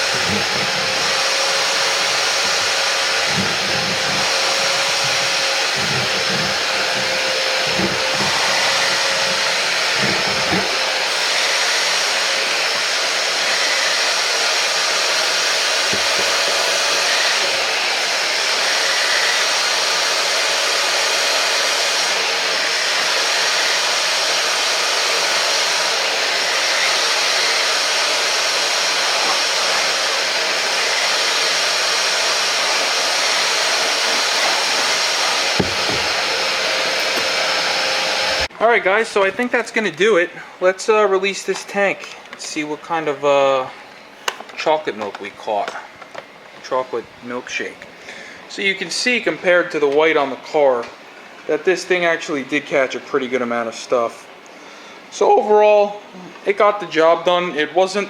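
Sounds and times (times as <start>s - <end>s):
spot cleaner suction motor: 0.0s - 38.5s.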